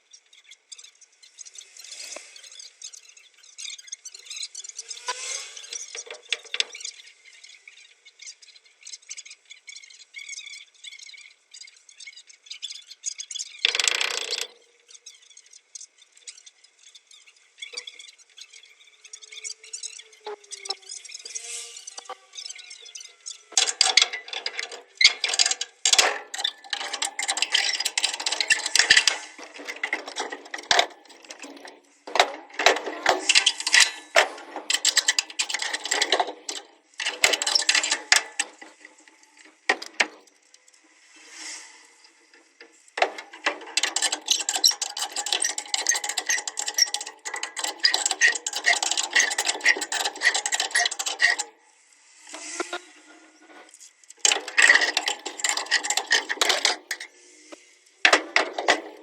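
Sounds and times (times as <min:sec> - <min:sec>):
metal tools clattering: 0:05.1 - 0:06.8, 0:23.5 - 0:40.3, 0:43.0 - 0:51.5, 0:54.2 - 0:57.2, 0:58.1 - 0:59.0.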